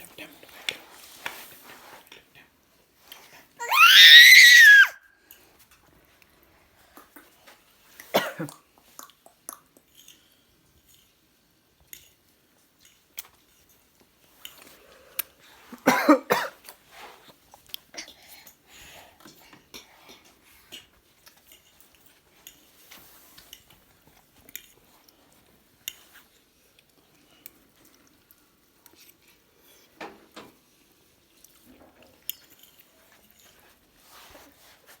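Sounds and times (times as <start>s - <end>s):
child chewing: 16.6s - 30.0s.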